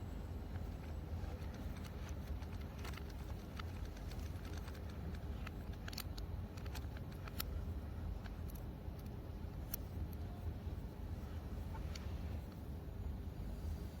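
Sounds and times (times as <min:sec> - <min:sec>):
steady low rumble: 0:00.0 - 0:14.0
light clicks and taps: 0:00.5 - 0:10.2.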